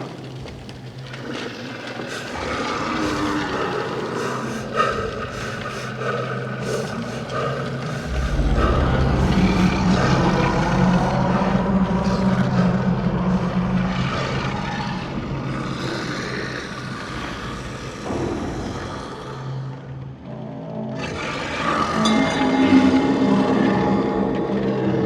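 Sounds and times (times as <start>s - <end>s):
steady low tones: 4.3s - 17.1s
low droning rumble: 6.5s - 16.8s.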